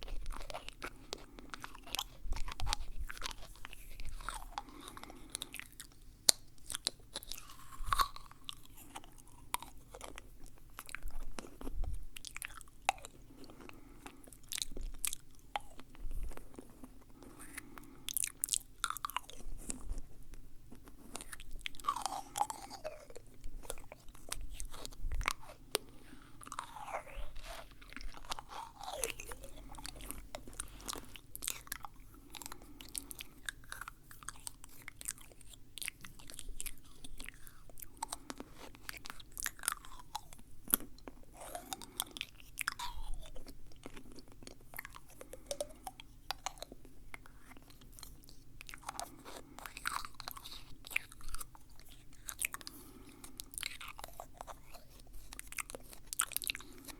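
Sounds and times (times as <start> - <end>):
wet mouth clicks and smacks: 20.8 - 56.9.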